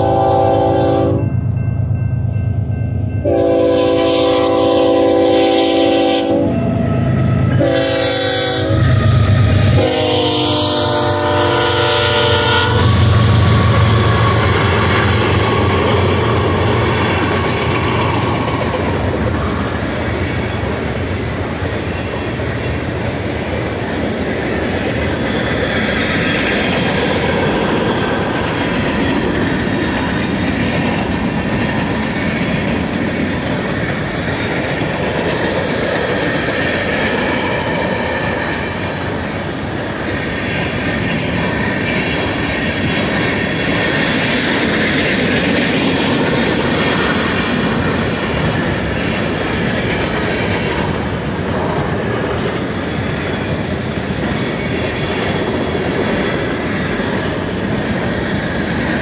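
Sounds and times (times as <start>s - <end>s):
locomotive air horn: 0.0s - 1.2s, 3.2s - 6.8s, 7.4s - 16.1s
diesel engines passing: 6.7s - 22.6s.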